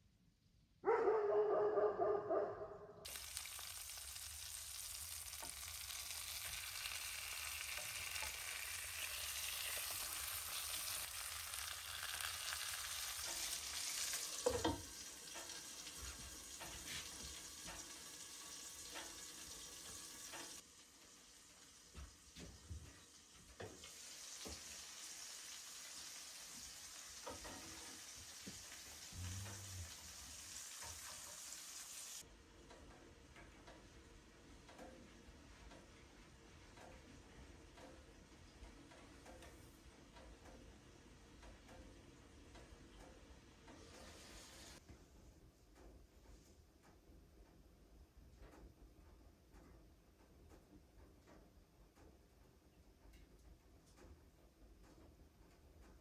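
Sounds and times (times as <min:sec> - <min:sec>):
dog sound: 0:00.8 - 0:02.9
food sizzling in a pan: 0:03.1 - 0:32.3, 0:43.8 - 0:44.8
stirring knocks and scrapes: 0:13.0 - 0:18.0, 0:21.9 - 0:24.8, 0:26.5 - 0:30.2.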